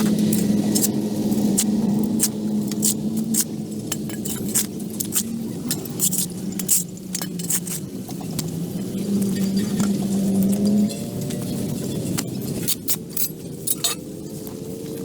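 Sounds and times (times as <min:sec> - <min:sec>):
sharp clicks and scrapes: 0:00.0 - 0:08.6, 0:09.2 - 0:14.1.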